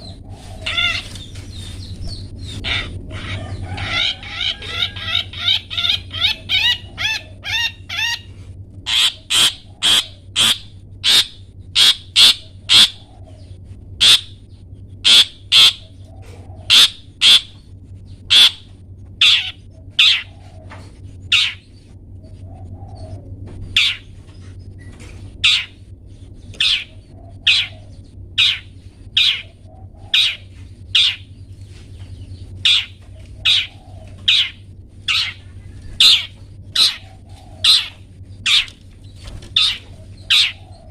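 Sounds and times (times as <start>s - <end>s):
shrike calling harsh chirps: 0.0s - 16.0s, 16.6s - 17.6s, 18.2s - 20.4s, 21.3s - 21.8s, 25.4s - 25.9s, 26.6s - 31.4s, 32.5s - 38.8s.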